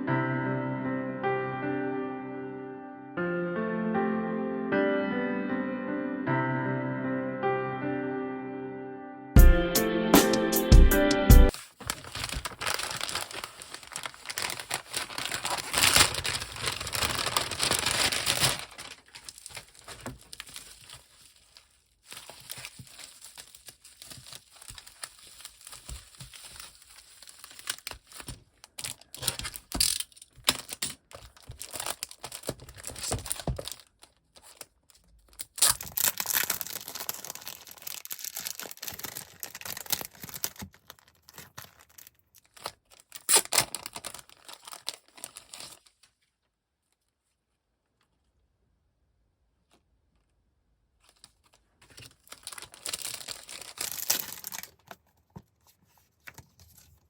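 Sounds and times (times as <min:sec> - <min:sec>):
packaging crinkling and tearing: 0:11.5 - 0:46.3, 0:51.0 - 0:57.0.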